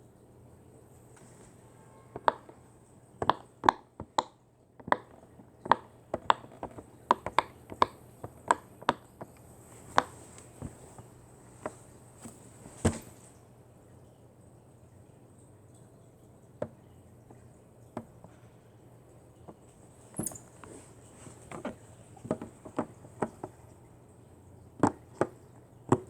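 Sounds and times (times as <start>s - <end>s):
sharp clicks and taps: 3.2s - 10.1s.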